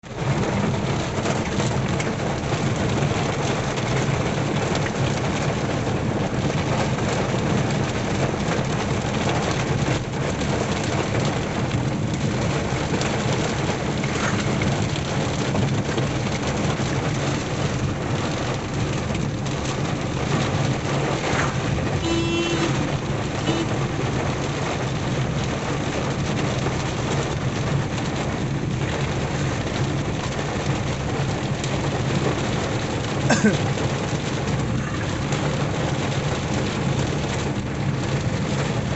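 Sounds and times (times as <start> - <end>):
engine and road noise: 0.0 - 38.9
heavy rain drumming on car: 0.0 - 38.9
short beeping tone: 22.0 - 22.8.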